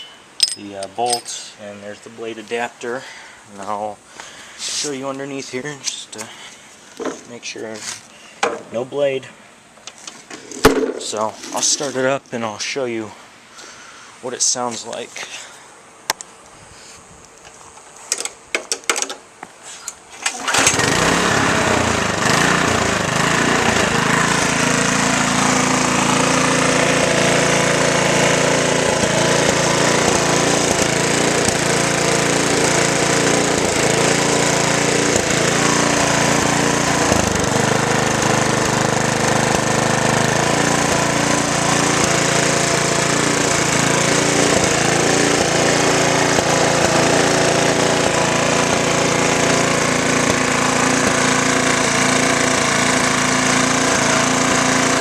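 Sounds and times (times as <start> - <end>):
lawn mower engine running: 0.0 - 1.4, 10.3 - 11.9, 20.2 - 55.0.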